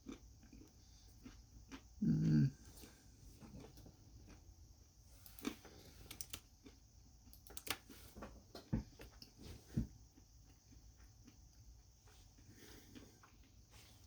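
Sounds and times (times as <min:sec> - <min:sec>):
chewing nuts with crunches: 0:00.0 - 0:07.9, 0:08.9 - 0:14.0.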